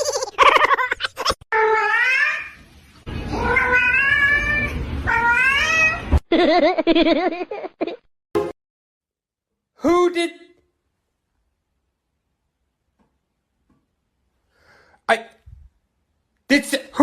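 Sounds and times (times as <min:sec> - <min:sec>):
cat meowing: 0:01.6 - 0:02.6, 0:03.3 - 0:06.1.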